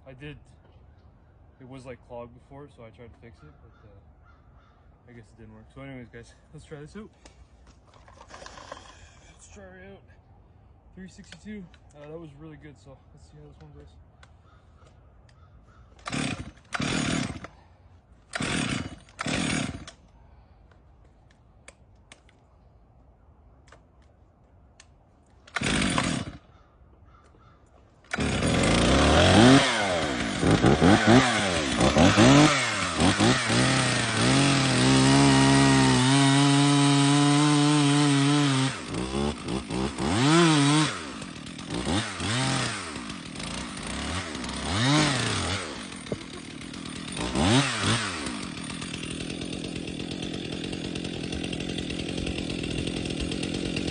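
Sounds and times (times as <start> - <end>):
chainsaw engine revving: 8.0 - 9.3, 16.0 - 17.6, 18.3 - 20.0, 25.5 - 26.5, 28.1 - 53.9.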